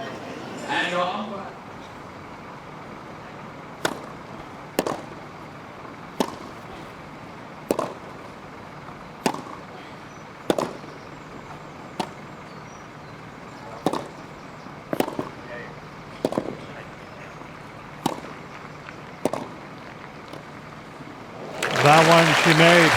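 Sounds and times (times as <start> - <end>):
steady background noise: 0.0 - 22.9
tennis ball hit by rackets: 3.8 - 4.2, 4.8 - 5.2, 6.1 - 6.6, 7.6 - 8.1, 9.2 - 9.7, 10.5 - 10.9, 13.8 - 14.2, 14.9 - 15.4, 16.2 - 16.6, 18.0 - 18.4, 19.2 - 19.6.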